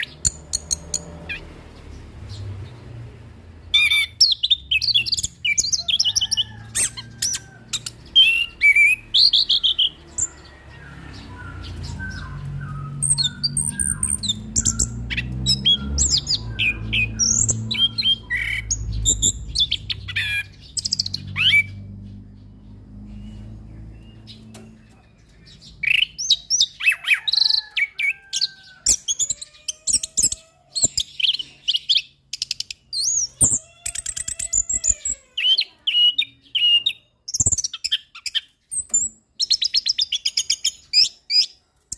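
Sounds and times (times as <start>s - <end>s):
low rumble: 10.3s - 25.3s.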